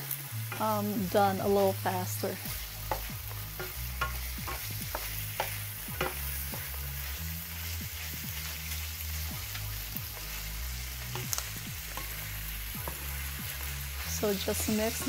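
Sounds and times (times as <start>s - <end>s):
chicken and onion sizzling in a pan: 0.0s - 15.0s
wooden spatula scraping a pan: 1.1s - 15.0s.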